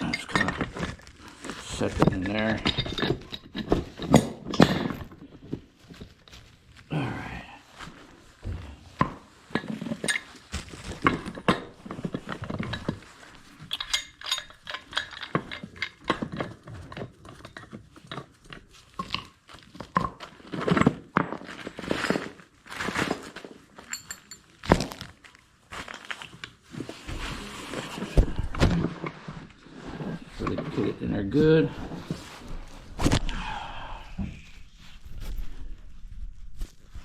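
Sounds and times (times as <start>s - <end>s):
metal clinks and knocks: 1.6s - 5.2s, 11.0s - 18.3s, 23.8s - 24.8s.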